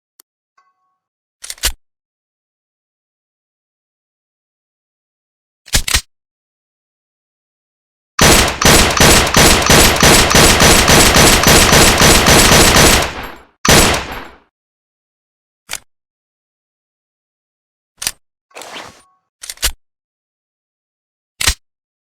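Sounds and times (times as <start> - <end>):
rapid gunfire: 8.2 - 14.4.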